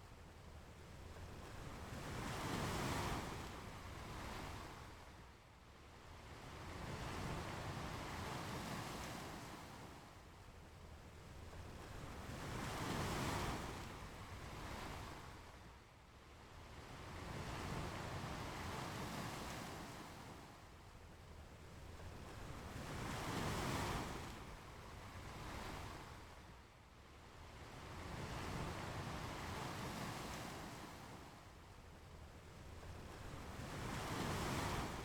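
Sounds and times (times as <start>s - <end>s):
ocean waves breaking on beach: 33.4s - 35.0s.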